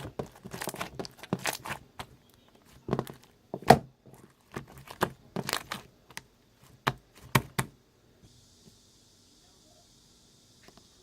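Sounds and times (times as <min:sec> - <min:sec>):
slime squished by hand: 0:00.0 - 0:07.7.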